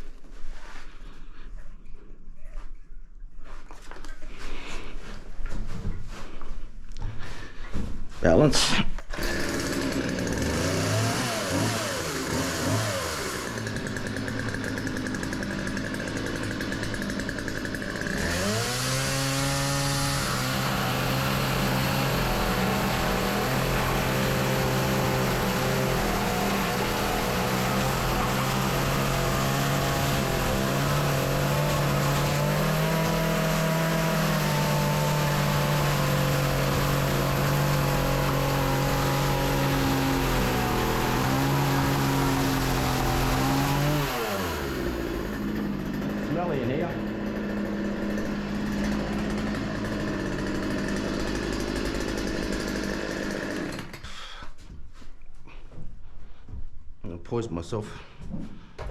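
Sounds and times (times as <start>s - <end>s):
chainsaw engine revving: 9.1s - 54.3s.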